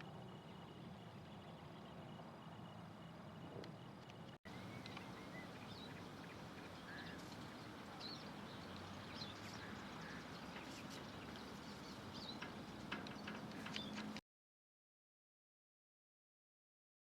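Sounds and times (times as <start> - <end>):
low background hum: 0.0 - 14.2
small birds chirping: 0.1 - 14.2
faint clicks: 3.6 - 5.1.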